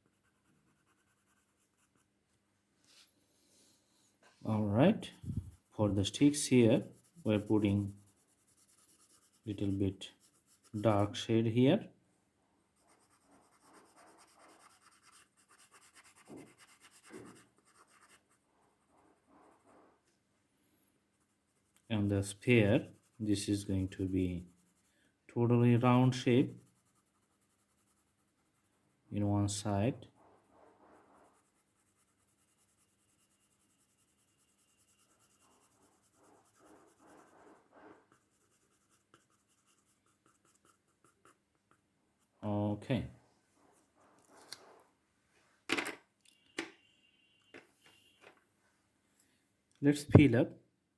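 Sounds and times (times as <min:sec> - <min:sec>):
pencil scratching on paper: 0:00.0 - 0:02.2, 0:05.1 - 0:11.2, 0:12.7 - 0:20.1, 0:21.1 - 0:29.3, 0:29.9 - 0:42.4.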